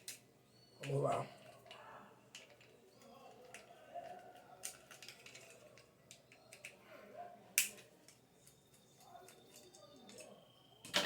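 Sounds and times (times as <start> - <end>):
small clicks and taps of parts: 1.4 - 6.8.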